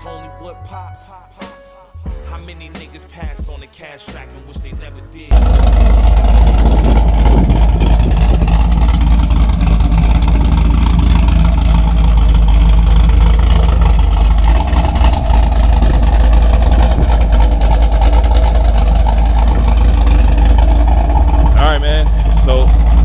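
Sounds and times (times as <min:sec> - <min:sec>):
car engine droning: 0:05.3 - 0:23.0.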